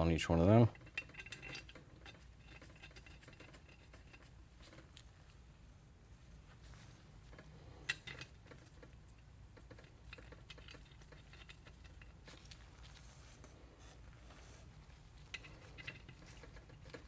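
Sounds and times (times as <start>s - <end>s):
small metal parts clicking: 0.8s - 5.1s.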